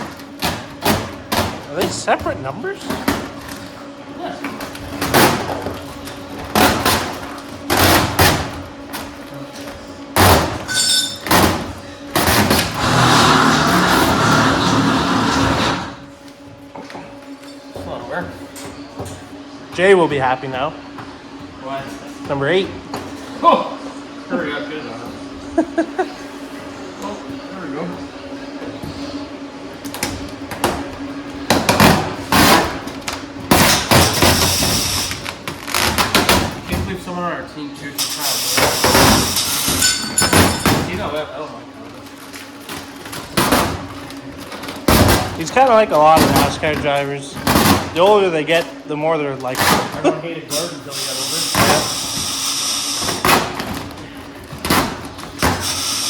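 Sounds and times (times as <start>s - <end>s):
short metallic ring: 10.7s - 11.2s.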